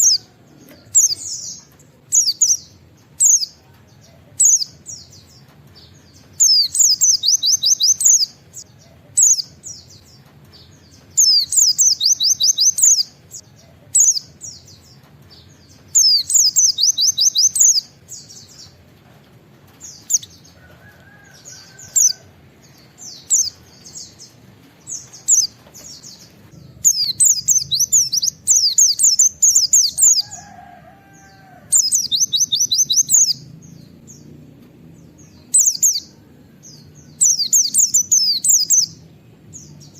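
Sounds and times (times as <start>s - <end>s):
soft bird chirps: 0.0s - 34.4s.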